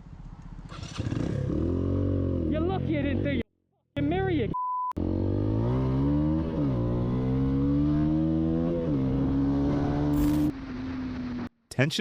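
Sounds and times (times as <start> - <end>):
vehicle engine accelerating through gears: 5.0 - 11.5.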